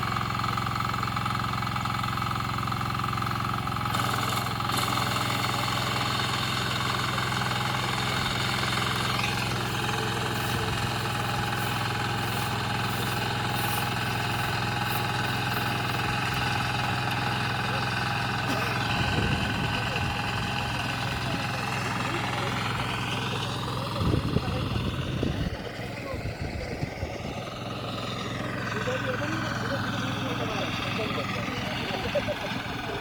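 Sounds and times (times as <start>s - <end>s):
reaper machine engine running: 0.0s - 33.0s
hissing rattle: 8.0s - 17.5s.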